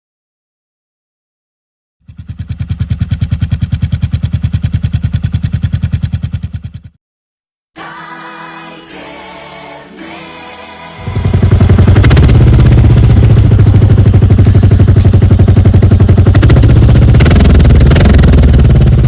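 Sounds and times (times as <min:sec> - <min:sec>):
motorcycle exhaust beat: 0:02.1 - 0:07.0, 0:11.0 - 0:19.0
background music with singing: 0:07.8 - 0:12.1.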